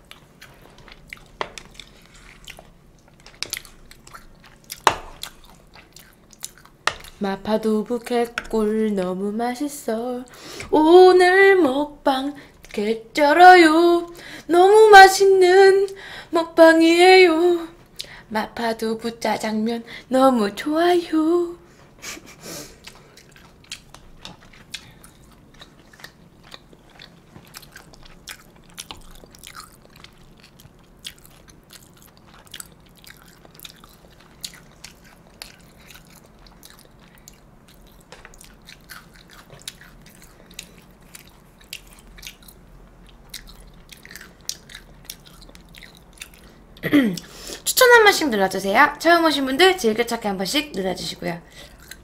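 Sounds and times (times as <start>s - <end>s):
person chewing food: 0.0s - 9.2s, 21.7s - 47.6s, 51.5s - 52.0s.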